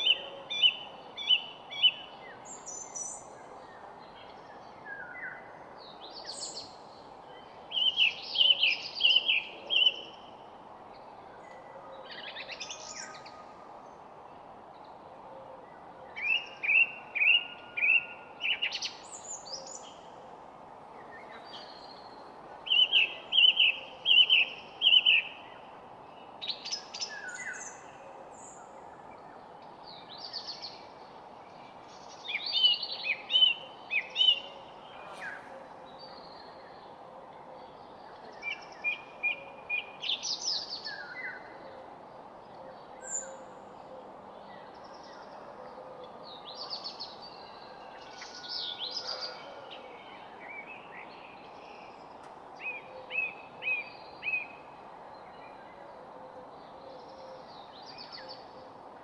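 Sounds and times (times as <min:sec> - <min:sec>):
steady background hiss: 0:00.0 - 0:59.0
songbirds chirping and singing: 0:20.9 - 0:59.0.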